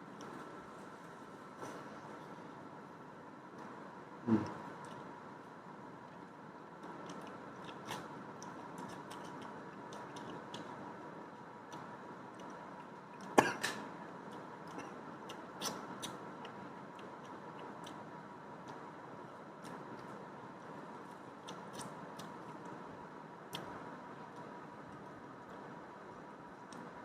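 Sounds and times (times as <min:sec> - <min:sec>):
faint steady hum: 0:00.0 - 0:27.0
person chewing food: 0:06.8 - 0:22.8.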